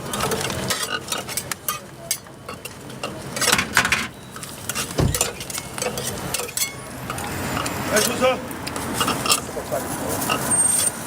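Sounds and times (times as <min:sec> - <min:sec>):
metal utensils clinking: 0:00.2 - 0:08.2
dull thump: 0:05.0 - 0:05.4.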